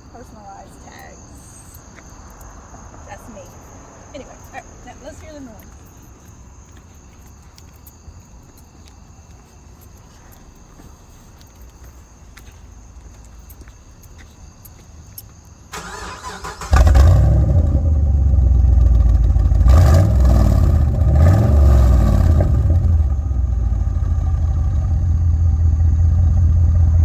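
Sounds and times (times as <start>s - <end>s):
car engine cranking: 15.7s - 27.0s
car engine revving and idling: 16.2s - 27.0s.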